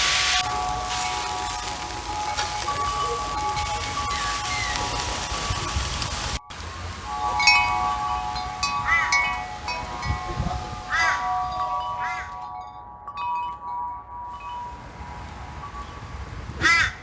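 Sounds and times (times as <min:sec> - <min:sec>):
bird call: 0:00.0 - 0:12.4
wind chimes ringing: 0:00.0 - 0:16.7.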